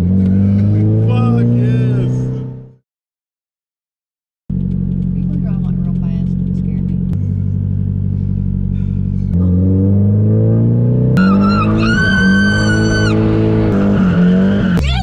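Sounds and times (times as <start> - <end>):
car engine revving: 0.0 - 2.8, 4.5 - 15.0
high squeal: 11.2 - 13.2.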